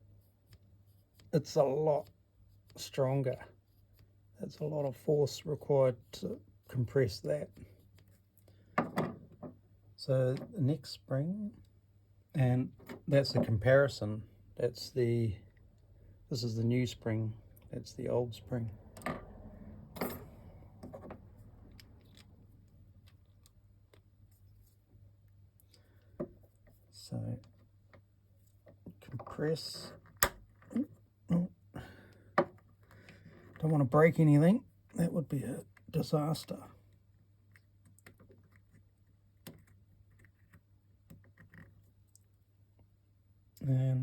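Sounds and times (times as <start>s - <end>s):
small parts and tools clicking: 19.9s - 24.1s.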